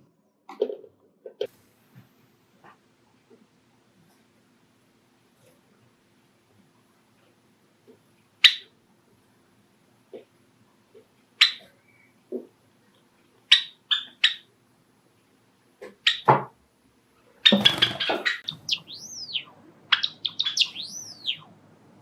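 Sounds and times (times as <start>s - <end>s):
sparrow call notes: 17.5s - 21.5s.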